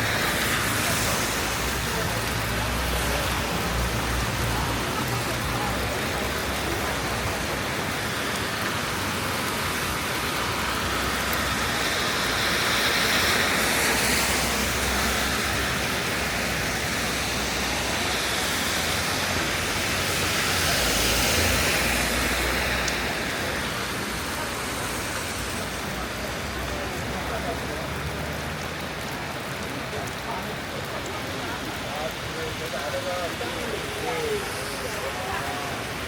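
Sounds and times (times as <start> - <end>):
rain falling on street: 0.0 - 36.0
vehicles passing on wet road: 0.0 - 36.0.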